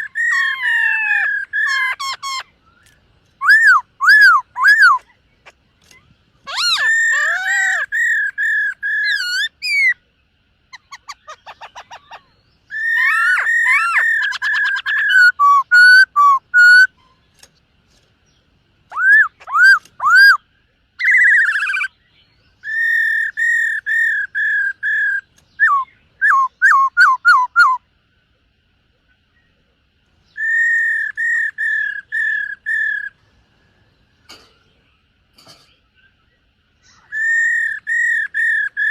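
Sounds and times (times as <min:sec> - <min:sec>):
bird singing whistled notes: 0:00.0 - 0:05.2, 0:05.8 - 0:10.0, 0:10.7 - 0:17.2, 0:18.9 - 0:27.9, 0:30.2 - 0:33.2, 0:36.0 - 0:38.9.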